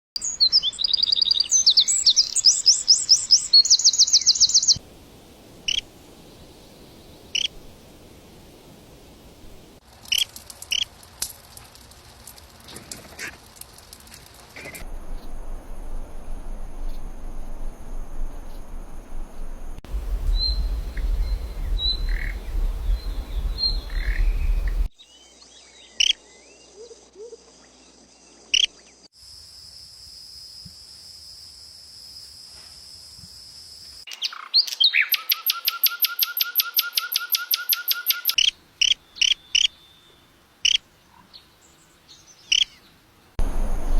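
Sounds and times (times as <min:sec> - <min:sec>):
birds chirping: 0:19.4 - 0:24.9.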